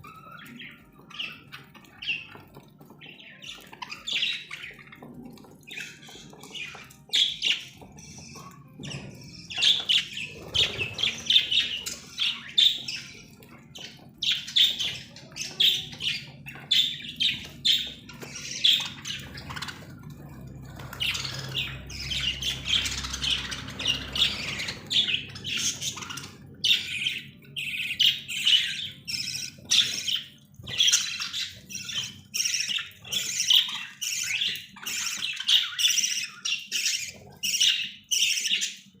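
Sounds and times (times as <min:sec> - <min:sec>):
parrots squawking and chirping: 0:00.0 - 0:39.0.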